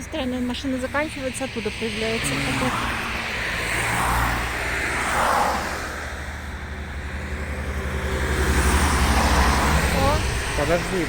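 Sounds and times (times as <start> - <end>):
cars swooshing past: 0.0 - 11.0
deep vehicle engine rumble: 0.0 - 11.0.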